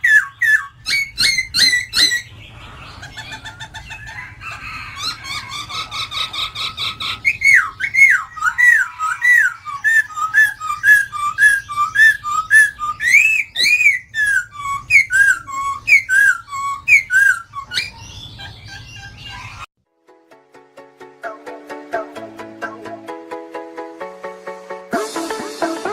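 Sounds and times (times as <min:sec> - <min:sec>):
bird singing slurred whistled notes: 0:00.0 - 0:02.4, 0:07.2 - 0:19.6.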